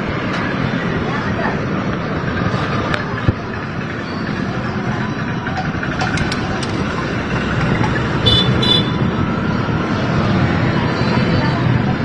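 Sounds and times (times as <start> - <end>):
road traffic noise: 0.0 - 12.0
vehicle horn toot: 8.2 - 9.0.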